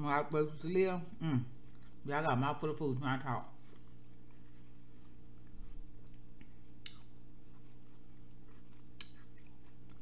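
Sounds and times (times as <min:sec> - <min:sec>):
low electrical hum: 0:00.0 - 0:10.0
wet chewing mouth clicks: 0:05.3 - 0:10.0
mouth smacks: 0:08.7 - 0:09.6.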